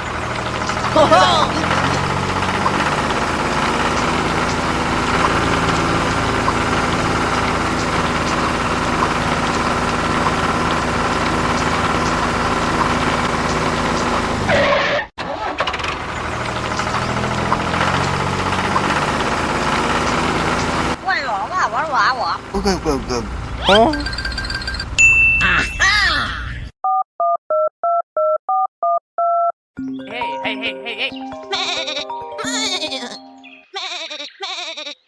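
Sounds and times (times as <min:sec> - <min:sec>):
tractor engine chugging: 0:00.0 - 0:14.5, 0:15.3 - 0:25.0.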